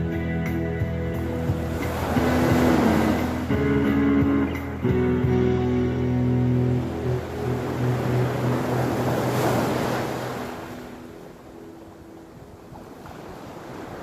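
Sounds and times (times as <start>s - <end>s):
sea waves washing ashore: 0.0s - 14.0s
wind buffeting microphone: 0.0s - 14.0s
guitar note ringing: 0.7s - 9.2s.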